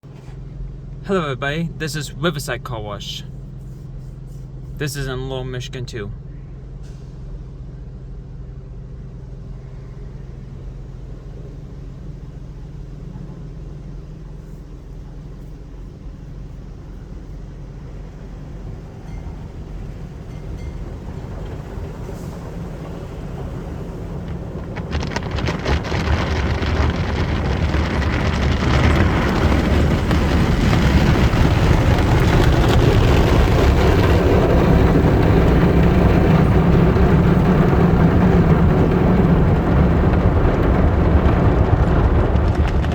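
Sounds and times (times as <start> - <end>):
car wash equipment rushing: 9.2 - 42.9.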